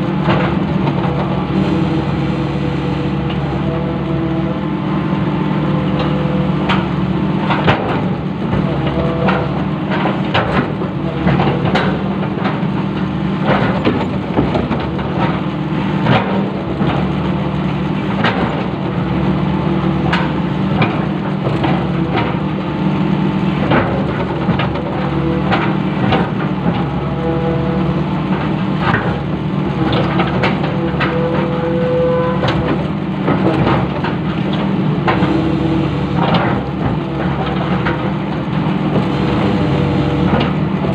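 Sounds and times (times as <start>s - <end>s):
excavator diesel engine running: 0.0s - 40.9s
irregular knocks and clanks: 5.9s - 17.3s, 18.1s - 18.8s.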